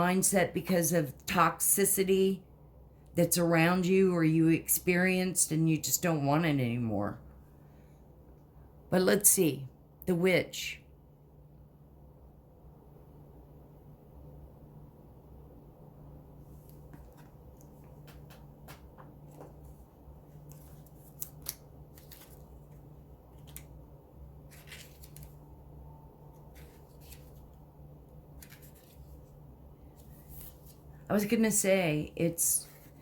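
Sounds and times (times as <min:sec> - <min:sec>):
low steady hum: 0:00.0 - 0:33.0
cards and paper rustling: 0:16.6 - 0:23.8, 0:24.4 - 0:25.5, 0:26.3 - 0:27.6, 0:28.3 - 0:30.9, 0:32.6 - 0:33.0.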